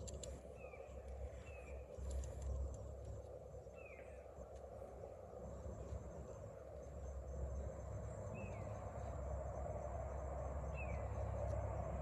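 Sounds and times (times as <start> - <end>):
low background rumble: 0.0 - 12.0
bird chirping: 8.2 - 8.8, 10.7 - 11.3.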